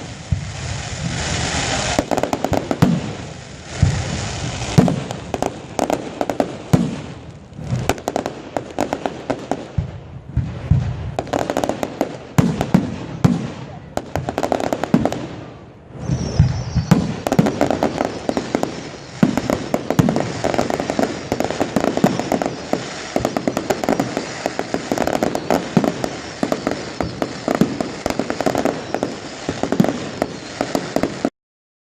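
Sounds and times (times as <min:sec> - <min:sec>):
fireworks bangs and crackling: 0:00.0 - 0:31.3.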